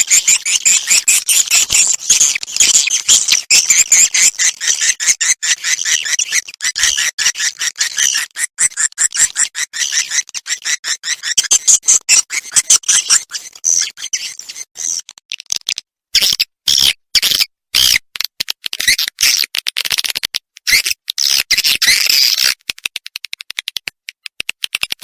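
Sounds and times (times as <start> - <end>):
swiftlet chirps and twitters: 0.0 - 15.0.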